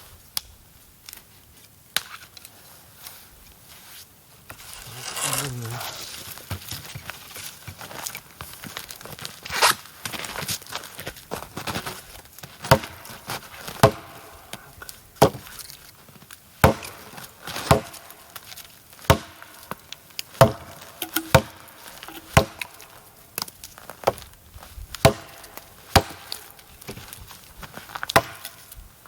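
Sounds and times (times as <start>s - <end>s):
axe chopping firewood: 12.7s - 14.3s, 15.2s - 15.5s, 16.6s - 27.0s, 28.0s - 28.6s.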